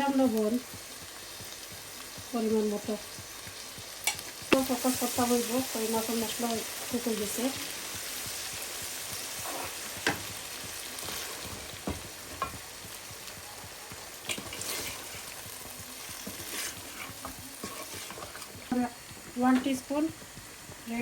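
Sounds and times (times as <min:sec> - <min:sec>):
masala sizzling in oil: 0:00.0 - 0:21.0
spatula scraping a pan: 0:09.3 - 0:10.4, 0:11.0 - 0:12.6, 0:14.2 - 0:19.8.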